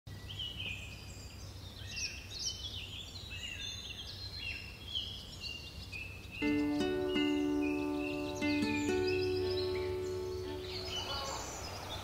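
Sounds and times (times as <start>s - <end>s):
low steady background noise: 0.1s - 12.0s
small birds singing: 0.1s - 12.0s.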